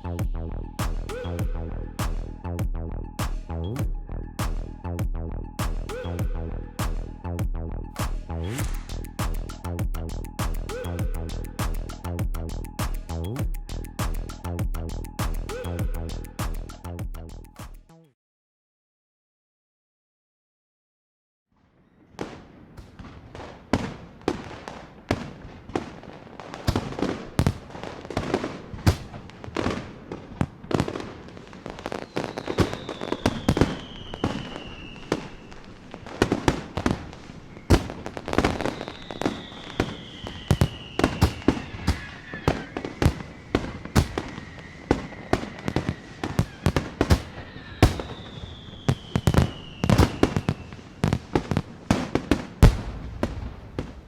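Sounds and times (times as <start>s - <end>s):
falling firework whistles: 8.0s - 9.7s, 30.7s - 54.0s
fireworks cracking and popping: 8.0s - 10.8s, 22.2s - 54.0s.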